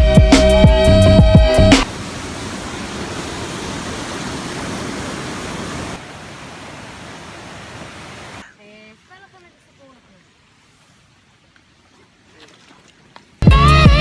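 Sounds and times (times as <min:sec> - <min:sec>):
background music: 0:00.0 - 0:01.9, 0:13.4 - 0:14.0
waterfall rushing: 0:00.4 - 0:08.5.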